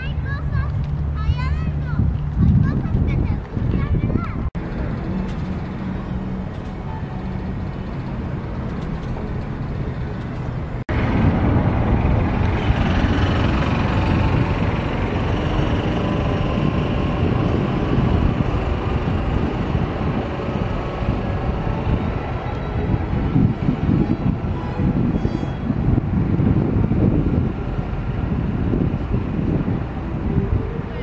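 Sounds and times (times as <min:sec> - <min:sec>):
vehicle running hum: 0:00.0 - 0:31.0.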